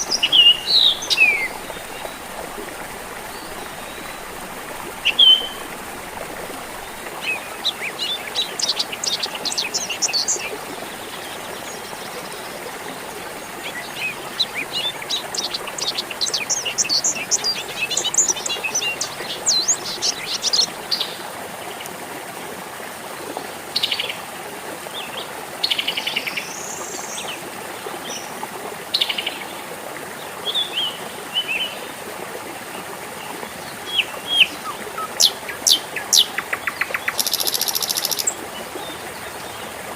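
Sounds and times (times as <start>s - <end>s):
songbirds chirping: 0.0s - 21.9s, 33.2s - 39.9s
water trickling: 0.0s - 25.5s, 29.8s - 39.9s.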